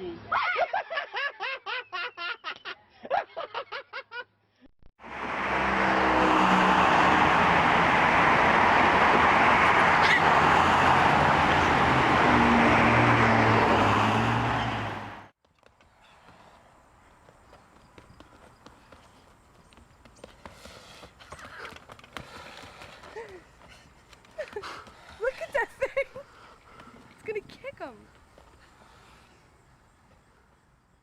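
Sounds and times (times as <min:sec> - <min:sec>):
laughter: 0:00.3 - 0:04.4, 0:24.4 - 0:26.2
loud steady rushing noise: 0:05.0 - 0:15.3.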